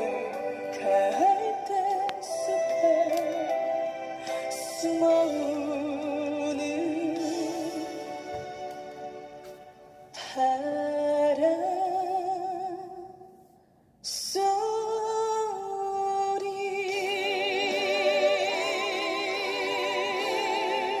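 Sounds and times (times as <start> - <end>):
woman singing a ballad: 0.0 - 8.2, 10.2 - 13.2, 14.1 - 21.0
backing music: 0.0 - 10.2, 16.7 - 21.0.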